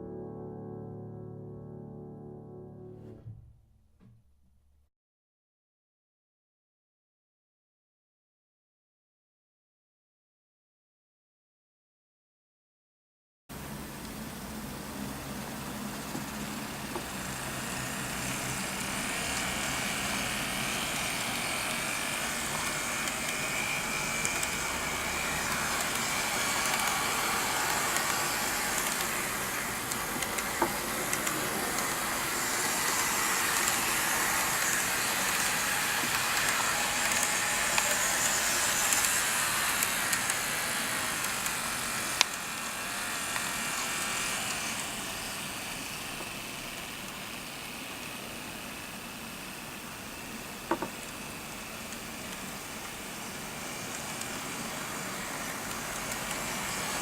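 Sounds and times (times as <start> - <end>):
model train motor whir: 13.9 - 57.0.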